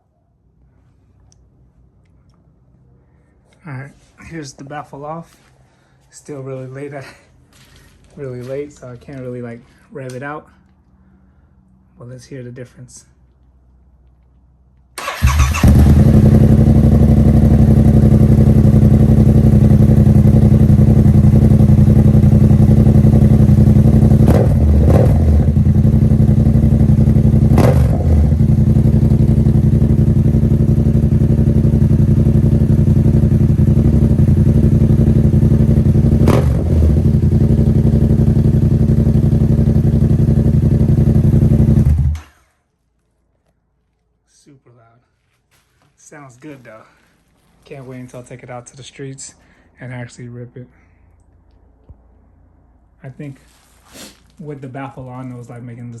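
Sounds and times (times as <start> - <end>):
motorcycle engine idling and revving: 15.0 - 42.5.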